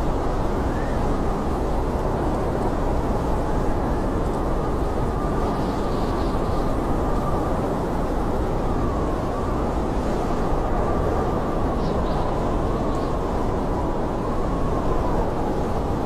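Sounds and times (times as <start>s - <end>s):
blizzard wind roaring: 0.0s - 16.0s
faint high wind whistle: 0.5s - 1.9s.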